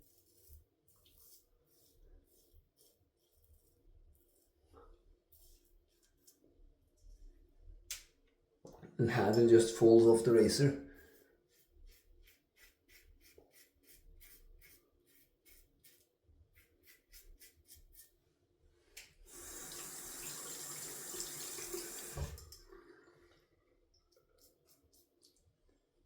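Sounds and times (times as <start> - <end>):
water running from sink tap: 19.3 - 22.7.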